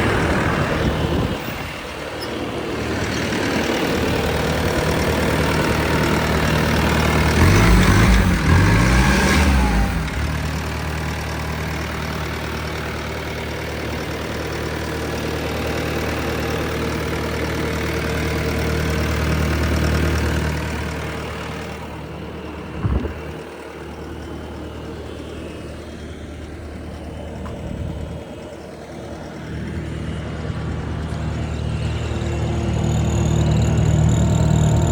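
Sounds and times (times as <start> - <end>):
diesel engine revving and running: 0.0 - 34.9
short clunk: 22.8 - 23.4.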